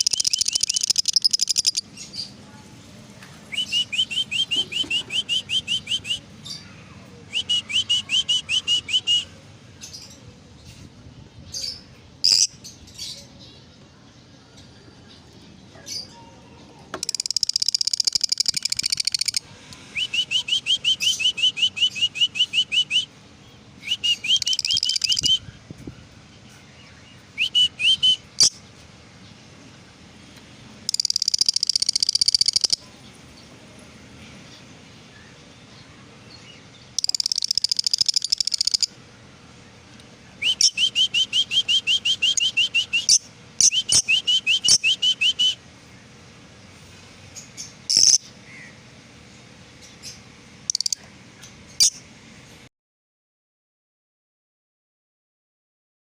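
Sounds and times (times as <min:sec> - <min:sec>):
lovebirds chattering and chirping: 0:00.0 - 0:52.1.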